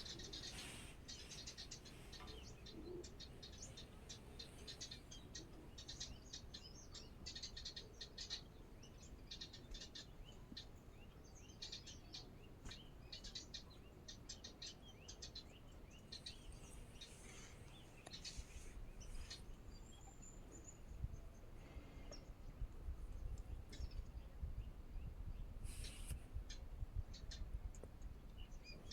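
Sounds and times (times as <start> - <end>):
small birds twittering: 0.0 - 28.9
thin bird whistles: 25.6 - 26.6.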